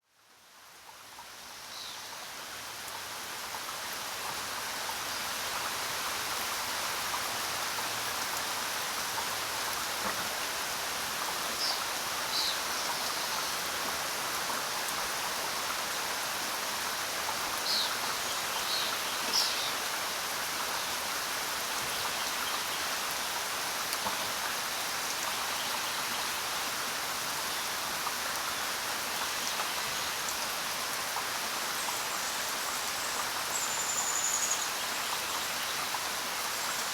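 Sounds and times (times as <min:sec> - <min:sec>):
steady rain falling: 0:00.0 - 0:36.9.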